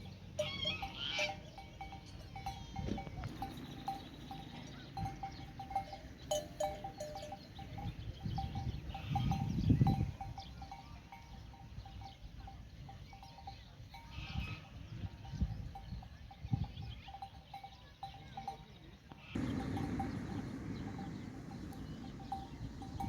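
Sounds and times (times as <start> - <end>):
animal bells clinking: 0.0 - 23.0
low rumbling noise: 19.4 - 23.0.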